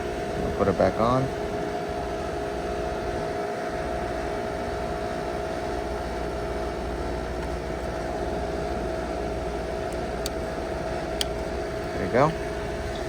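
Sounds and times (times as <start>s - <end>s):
air conditioning unit humming: 0.0s - 13.0s.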